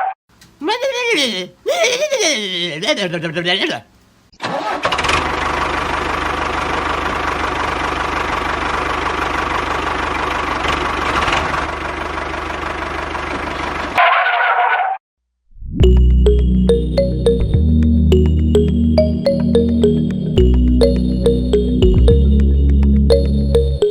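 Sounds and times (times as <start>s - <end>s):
small tractor engine running: 4.5s - 14.0s.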